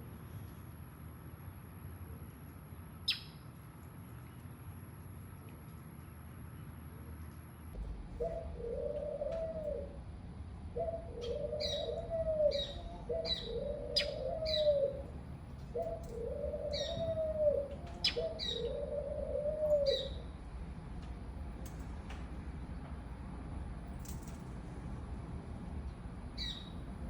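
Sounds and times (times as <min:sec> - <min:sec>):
small bird chirping: 0:03.1 - 0:03.4
dove cooing: 0:08.1 - 0:20.4.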